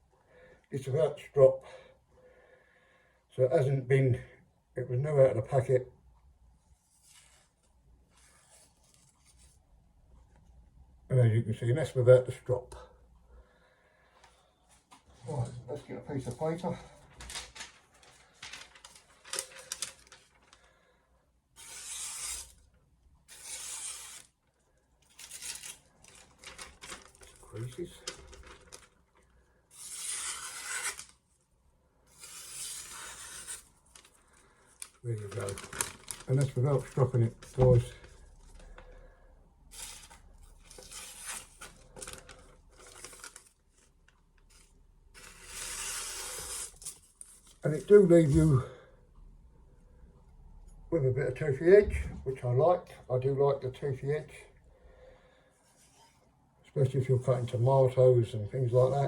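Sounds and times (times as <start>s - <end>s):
paper rustling and crinkling: 14.8s - 20.8s, 25.0s - 31.2s, 32.2s - 39.0s, 39.7s - 48.5s
knife slicing through paper: 21.6s - 22.6s, 23.3s - 24.4s, 25.1s - 28.8s, 29.7s - 31.2s, 32.1s - 34.1s.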